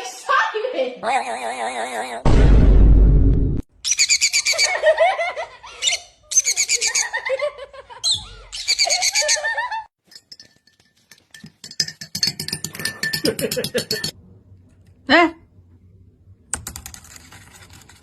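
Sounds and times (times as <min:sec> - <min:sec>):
parrot cackling calls: 0:03.8 - 0:04.9.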